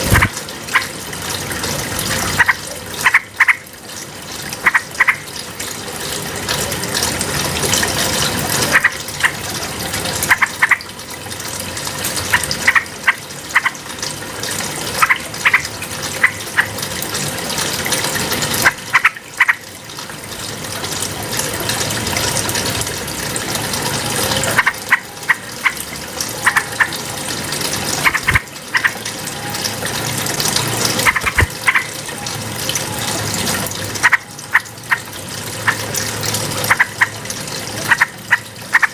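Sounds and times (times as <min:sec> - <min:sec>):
rushing water-like background: 0:00.0 - 0:38.9
bulbul calling: 0:02.4 - 0:03.6, 0:26.4 - 0:26.9, 0:31.0 - 0:32.0, 0:36.7 - 0:37.2.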